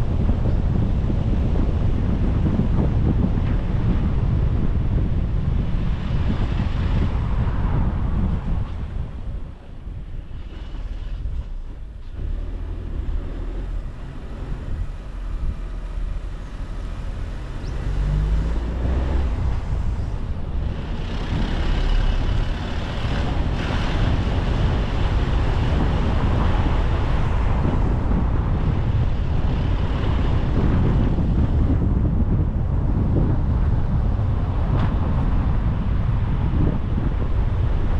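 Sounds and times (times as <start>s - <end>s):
car engine and tyre rumble: 0.0s - 37.9s
wind noise: 0.0s - 37.9s.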